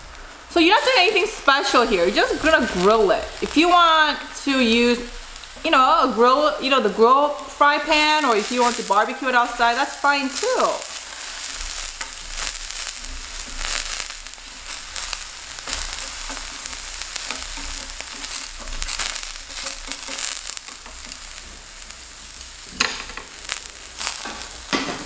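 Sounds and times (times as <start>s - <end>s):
zucchini sizzling in oil: 0.0s - 25.0s.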